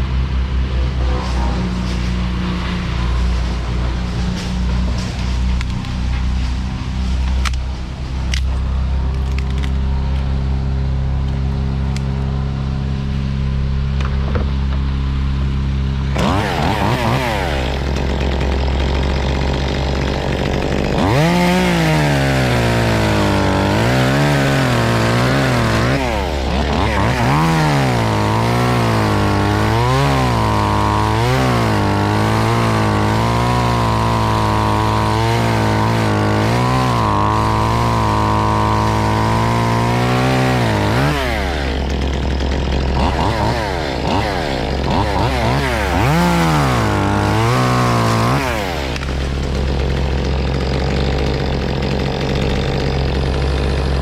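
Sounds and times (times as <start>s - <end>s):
low engine hum: 0.0s - 42.6s
chainsaw revving: 15.4s - 54.0s.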